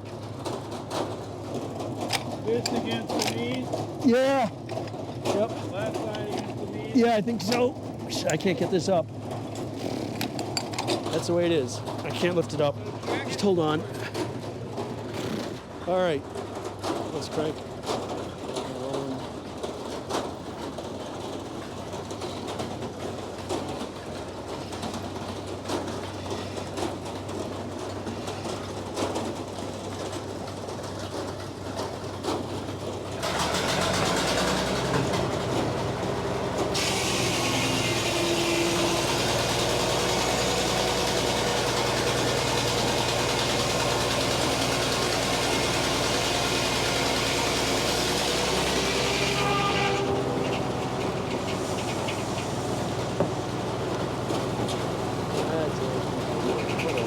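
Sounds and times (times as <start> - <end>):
sawmill machinery running: 0.0 - 57.0
circular saw blade cutting log: 33.2 - 55.3.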